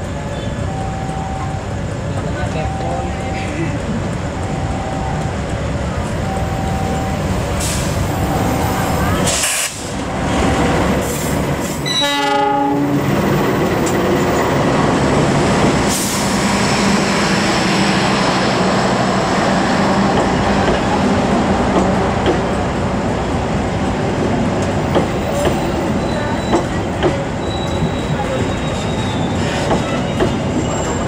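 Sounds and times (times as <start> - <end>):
train wheels rumbling and clacking: 0.0 - 31.0
locomotive horn: 11.8 - 13.0.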